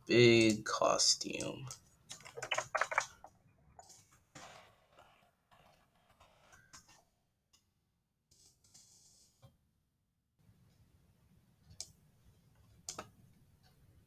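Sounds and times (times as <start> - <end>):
computer mouse clicks: 1.4 - 3.2.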